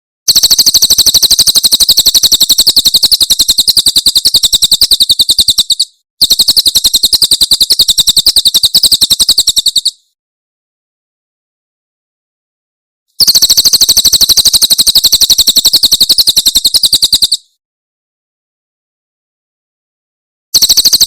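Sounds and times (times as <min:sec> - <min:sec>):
songbird rapid repeated call: 0:00.3 - 0:10.2, 0:13.2 - 0:17.6, 0:20.6 - 0:21.0.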